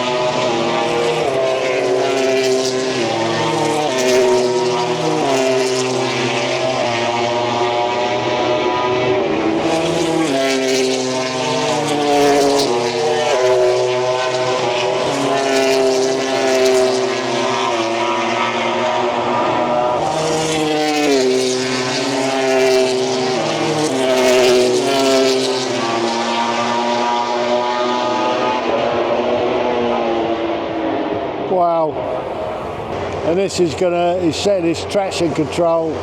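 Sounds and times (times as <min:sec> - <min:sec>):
racing motorcycle engines: 0:00.0 - 0:36.0.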